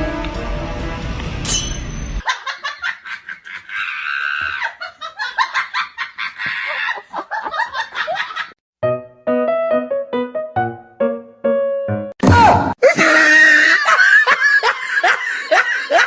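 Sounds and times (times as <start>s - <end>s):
music: 0.0s - 1.9s, 8.8s - 12.2s
high-pitched laughter bursts: 2.2s - 7.5s, 12.8s - 16.0s.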